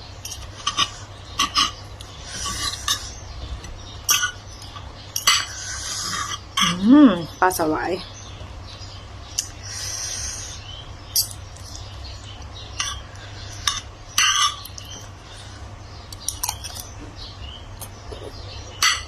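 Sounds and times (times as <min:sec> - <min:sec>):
utensils clinking on plates: 0:00.2 - 0:03.1, 0:04.1 - 0:06.8, 0:12.8 - 0:15.0, 0:18.8 - 0:19.0.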